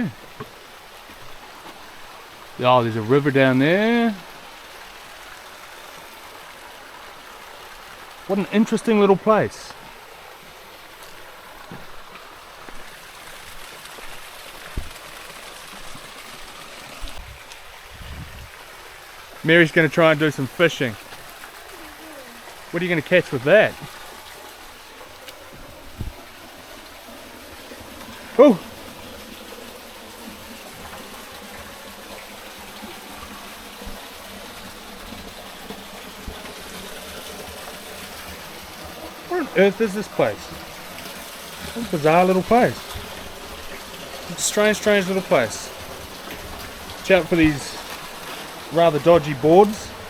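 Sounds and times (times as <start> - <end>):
flowing water: 0.0 - 50.0
stream running: 0.0 - 50.0
soft low thumps: 25.5 - 26.3.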